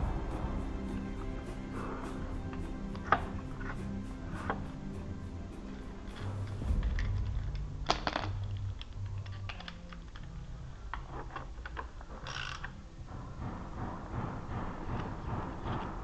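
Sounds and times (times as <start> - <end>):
sharp knocks: 13.0 - 16.0.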